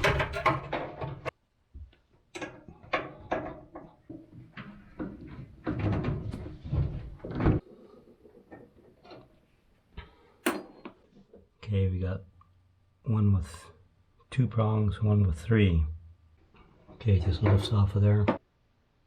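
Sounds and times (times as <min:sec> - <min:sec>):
metal parts clicking and rattling: 0:00.0 - 0:01.3.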